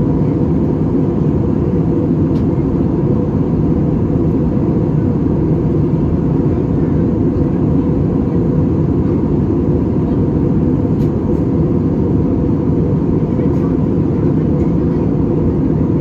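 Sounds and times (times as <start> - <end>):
jet cabin rumble: 0.0 - 16.0.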